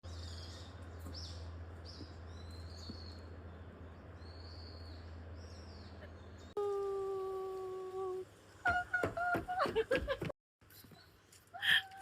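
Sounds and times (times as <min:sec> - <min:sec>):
small birds calling: 0:00.0 - 0:06.7
low steady rumble: 0:00.0 - 0:08.7.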